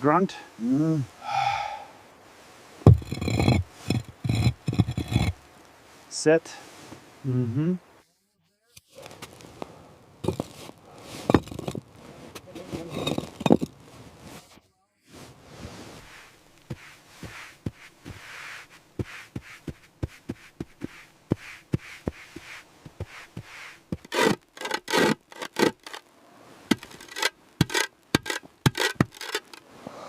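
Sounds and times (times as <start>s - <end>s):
stone scraping on stone: 2.8s - 5.5s, 10.2s - 14.4s, 20.8s - 26.0s, 26.7s - 29.6s.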